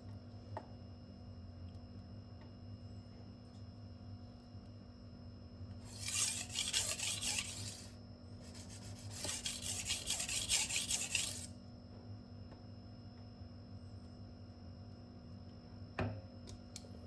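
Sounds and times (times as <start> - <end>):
knife scraping on sharpening stone: 5.9 - 7.9, 8.6 - 11.5.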